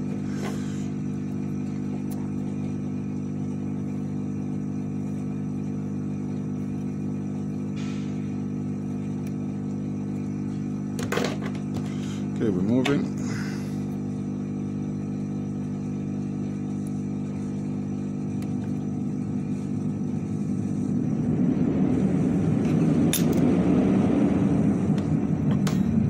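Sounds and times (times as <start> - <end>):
motor hum: 0.0 - 26.0.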